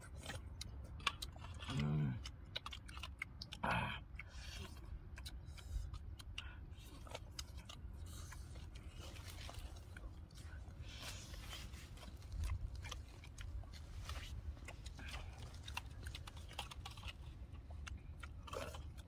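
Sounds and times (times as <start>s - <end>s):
low steady rumble: 0.0s - 19.0s
people chewing meat: 0.0s - 19.0s
wet clicks and smacks: 0.2s - 10.3s.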